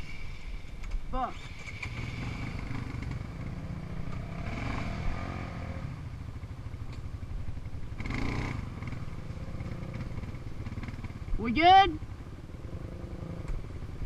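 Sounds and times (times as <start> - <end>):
small off-road engine running: 1.2 - 14.0.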